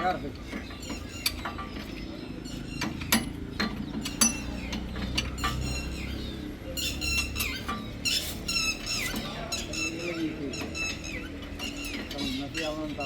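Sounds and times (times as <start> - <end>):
high squeaky chirps: 4.0 - 12.8.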